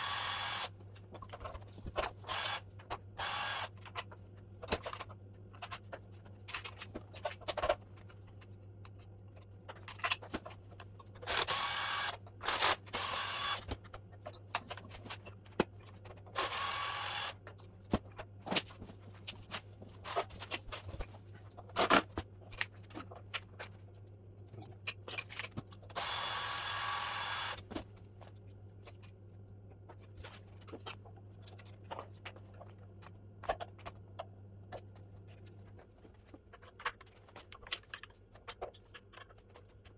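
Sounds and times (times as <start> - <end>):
cordless power screwdriver running: 0.0 - 0.7, 2.2 - 2.6, 3.2 - 3.7, 11.3 - 13.7, 16.4 - 17.3, 26.0 - 27.6.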